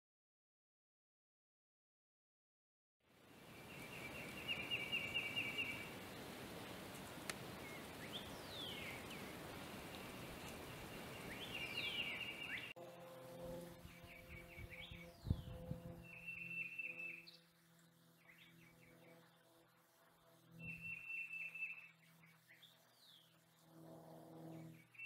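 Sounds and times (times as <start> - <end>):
outdoor background hiss: 3.0 - 25.0
down-slurred whistled bird notes: 3.6 - 5.9, 11.0 - 12.8, 13.8 - 19.5, 20.5 - 23.4, 24.4 - 25.0
songbird fast trill: 3.6 - 6.0, 7.6 - 12.8, 13.8 - 19.5, 20.5 - 23.4.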